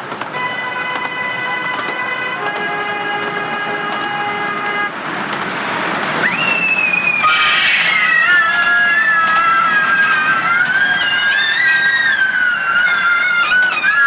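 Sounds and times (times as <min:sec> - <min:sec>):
steam locomotive whistle: 0:00.4 - 0:04.9.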